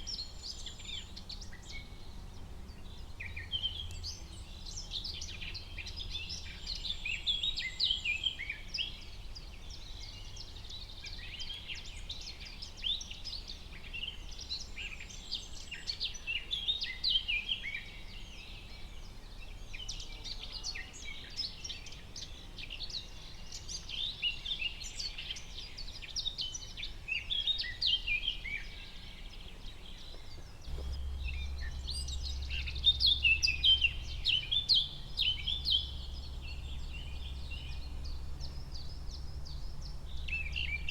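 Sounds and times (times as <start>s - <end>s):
songbirds chirping and trilling: 0.0s - 40.9s
low steady rumble: 30.6s - 40.9s.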